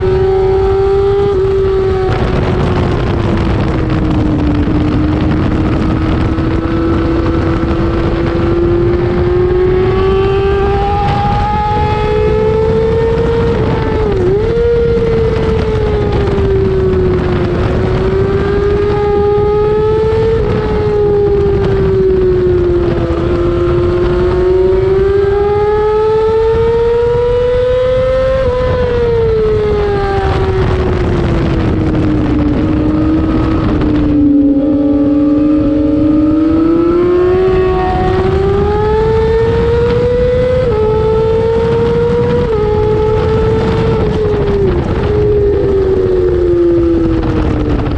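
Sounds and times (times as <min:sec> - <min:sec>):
motorcycle engine at high revs: 0:00.0 - 0:47.9
wind noise: 0:00.0 - 0:47.9.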